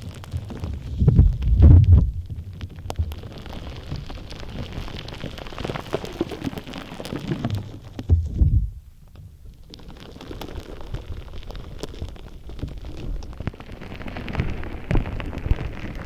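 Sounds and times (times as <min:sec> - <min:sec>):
slime crackling ticks: 0:00.0 - 0:08.0, 0:09.0 - 0:16.0
slime squishing: 0:00.0 - 0:16.0.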